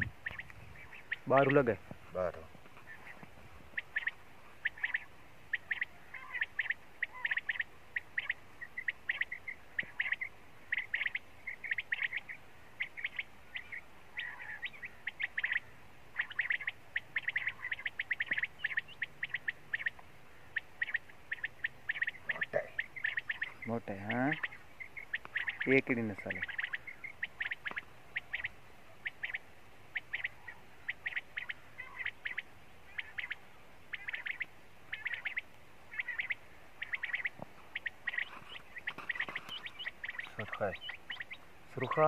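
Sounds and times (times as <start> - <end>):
bird chirping: 0.0 - 42.0.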